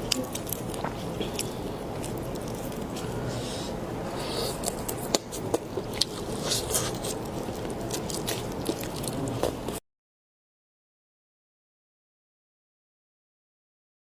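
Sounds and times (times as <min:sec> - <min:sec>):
person chewing food: 0:00.0 - 0:09.8.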